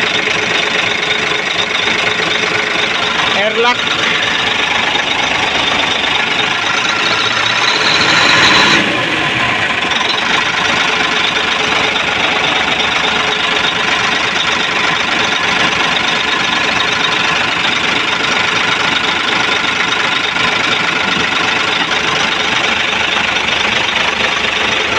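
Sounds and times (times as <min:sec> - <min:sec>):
diesel truck engine idling: 0:00.0 - 0:24.9.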